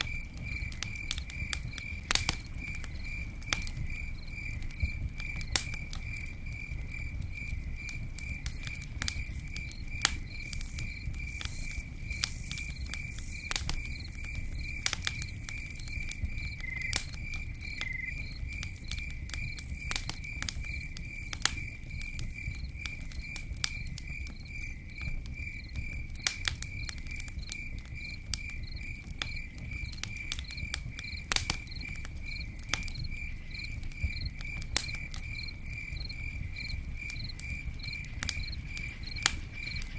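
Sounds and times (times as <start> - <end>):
campfire crackling and popping: 0.0 - 39.9
cricket chirping: 0.0 - 39.9.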